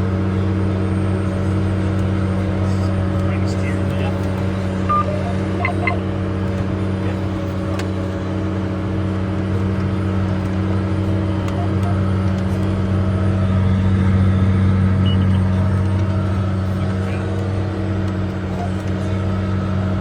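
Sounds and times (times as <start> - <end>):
tractor diesel engine running: 0.2 - 20.0
short electronic beeps: 4.8 - 6.1, 11.4 - 12.2, 15.0 - 15.6.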